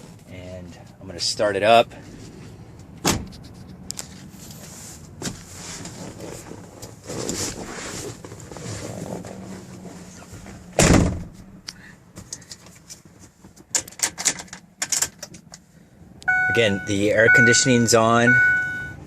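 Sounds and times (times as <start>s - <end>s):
truck door slamming: 3.0s - 3.3s, 10.8s - 11.5s.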